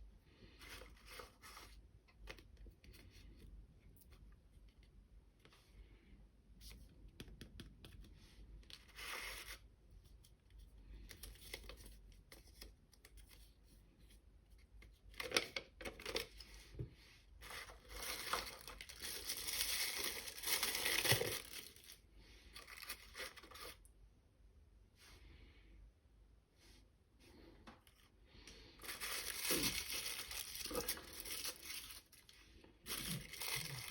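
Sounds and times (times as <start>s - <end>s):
packaging torn and crinkled: 17.5s - 22.0s, 28.8s - 32.3s, 32.9s - 33.9s.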